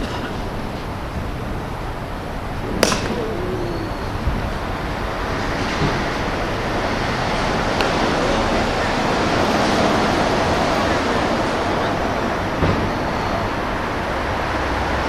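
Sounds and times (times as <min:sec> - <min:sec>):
wind on microphone: 0:01.0 - 0:08.0
sharp crack: 0:02.7 - 0:03.7.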